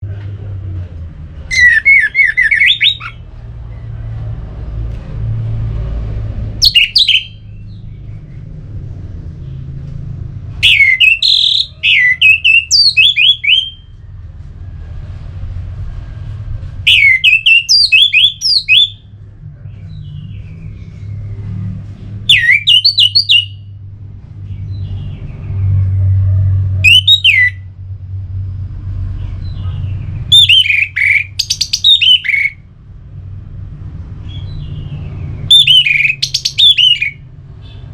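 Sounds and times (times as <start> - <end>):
thrush singing whistled notes: 1.5 - 3.2, 6.6 - 8.1, 10.6 - 14.0, 16.9 - 19.1, 22.3 - 23.7, 26.8 - 27.7, 30.3 - 32.6, 34.3 - 37.8
steady low hum: 7.3 - 10.7, 23.6 - 31.4.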